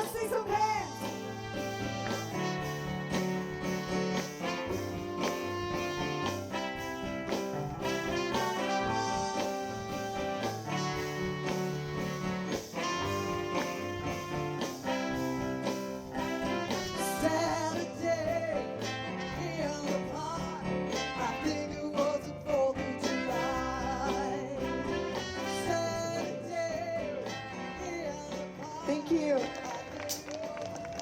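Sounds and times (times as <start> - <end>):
bass: 0.0 - 31.0
drums: 0.0 - 31.0
guitar: 0.0 - 31.0.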